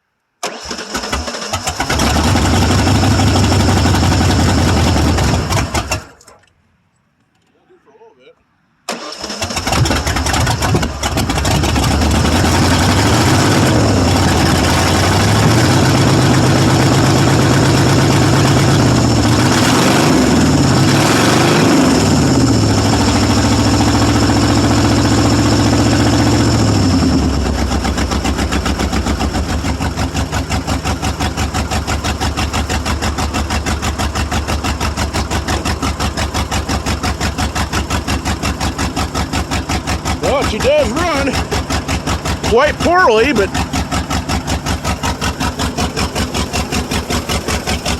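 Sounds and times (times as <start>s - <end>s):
loud engine revving: 0.4s - 6.1s, 8.9s - 47.9s
rough pulsing engine idle: 9.4s - 21.3s, 22.0s - 47.9s.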